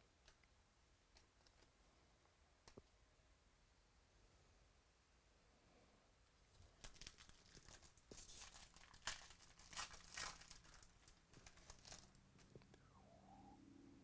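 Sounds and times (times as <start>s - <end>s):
foil wrapper tearing and crinkling: 6.6s - 12.2s.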